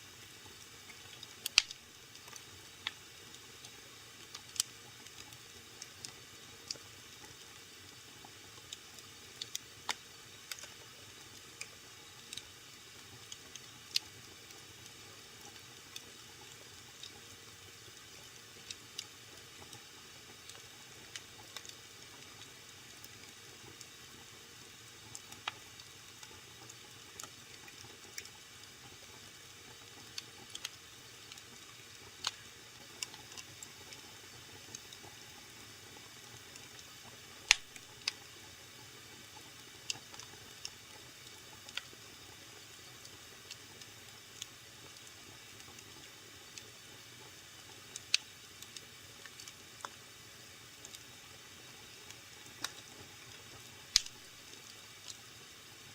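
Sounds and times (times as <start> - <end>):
wood fire crackling and popping: 0.4 - 17.2, 18.0 - 24.2, 25.1 - 35.2, 35.9 - 50.0, 50.8 - 55.2
fire hissing: 1.4 - 1.8, 37.4 - 38.0.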